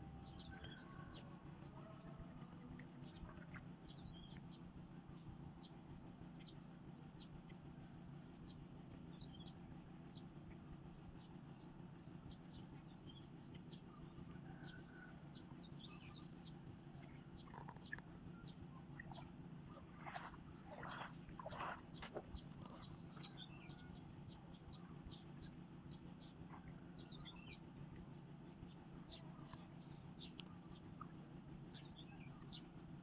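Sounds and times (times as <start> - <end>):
low steady hum: 0.0 - 33.0
faint bird chirps: 9.1 - 27.8.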